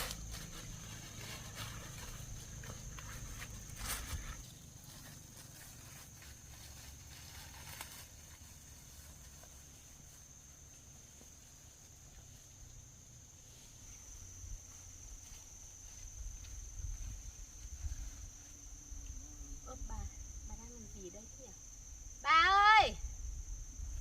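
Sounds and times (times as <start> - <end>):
faint rustles: 0.0 - 22.0
insects buzzing: 0.0 - 24.0.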